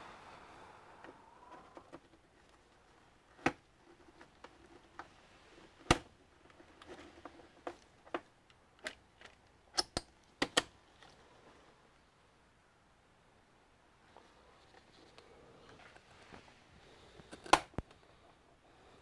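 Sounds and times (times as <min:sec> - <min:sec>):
plastic casing clicks and snaps: 0:08.8 - 0:10.8, 0:17.3 - 0:18.0.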